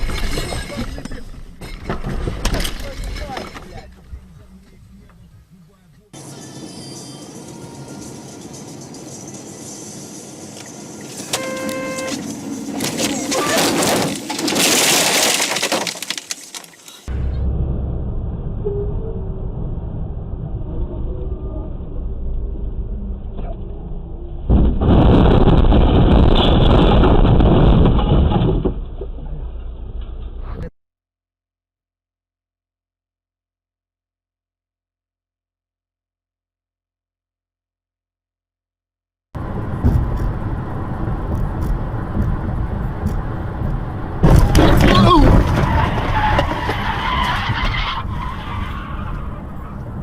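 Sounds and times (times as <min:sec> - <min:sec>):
low rumble of moving car: 0:00.0 - 0:13.6, 0:17.1 - 0:30.7, 0:39.4 - 0:50.0.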